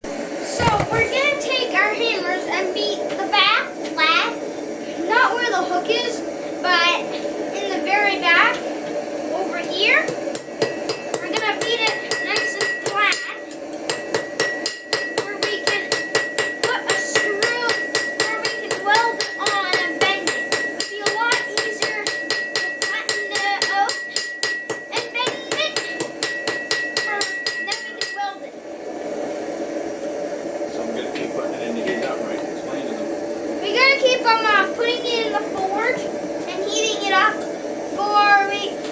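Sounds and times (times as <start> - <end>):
hammer striking hot metal: 9.6 - 28.4.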